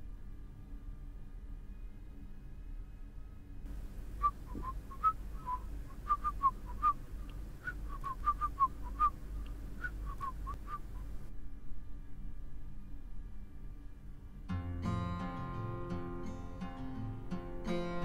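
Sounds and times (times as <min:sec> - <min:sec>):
birds chirping: 0:03.7 - 0:11.3.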